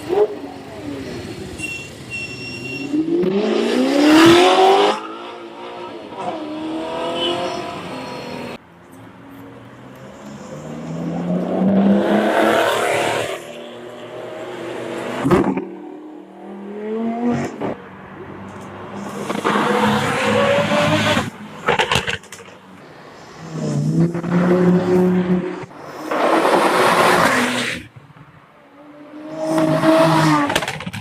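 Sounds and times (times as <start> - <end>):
cars accelerating past: 2.8 - 8.6, 9.8 - 21.5, 28.9 - 30.6.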